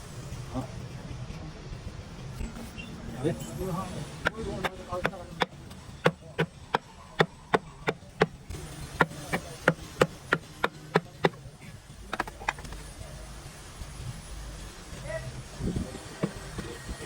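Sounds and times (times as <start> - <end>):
hand hammer blows: 4.2 - 11.5.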